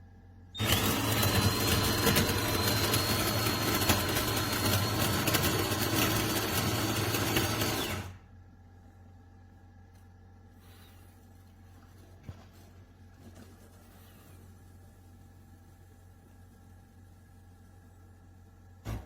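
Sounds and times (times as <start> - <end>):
espresso machine whirring: 0.6 - 8.2.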